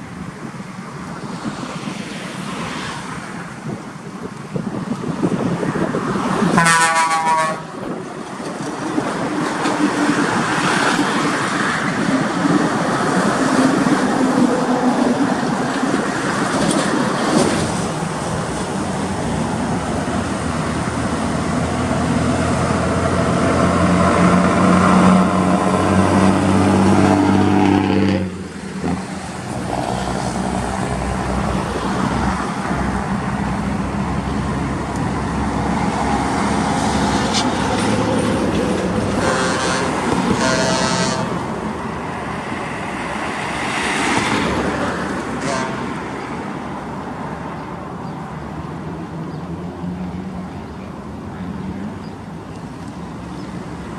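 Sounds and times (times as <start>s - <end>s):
heavy trucks running: 0.0s - 53.9s
truck horn blast: 6.5s - 7.8s, 39.1s - 41.6s, 45.3s - 46.1s.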